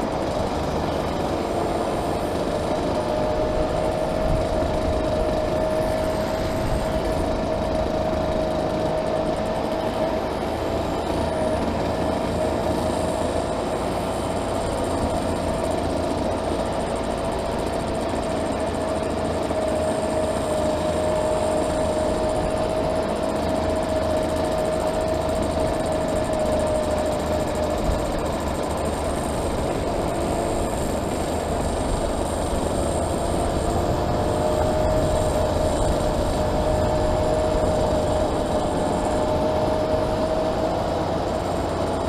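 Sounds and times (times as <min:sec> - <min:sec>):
wind rushing on microphone: 0:00.0 - 0:42.0
motorcycle engine droning: 0:19.3 - 0:42.0.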